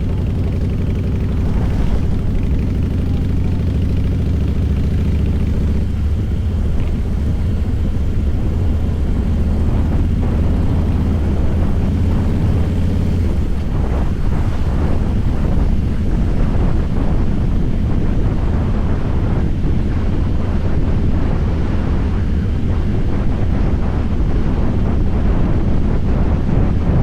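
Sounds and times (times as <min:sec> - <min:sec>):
motorcycle engine exhaust rumble: 0:00.0 - 0:27.0.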